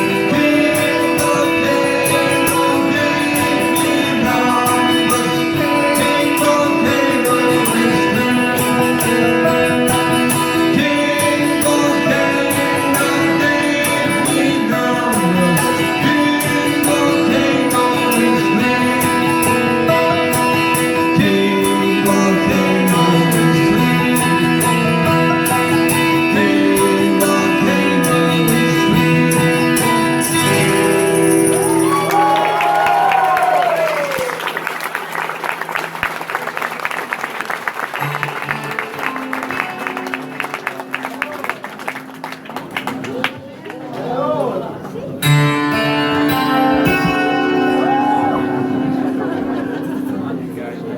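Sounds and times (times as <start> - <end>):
person singing: 0.0 - 34.3, 45.2 - 50.8
live band playing: 0.0 - 43.6, 45.2 - 50.9.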